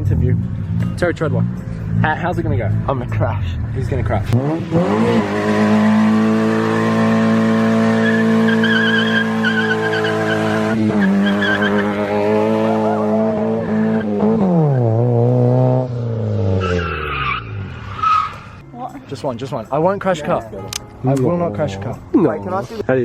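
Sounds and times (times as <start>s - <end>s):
car engine revving: 0.0s - 18.6s
tyres squealing: 5.2s - 12.1s.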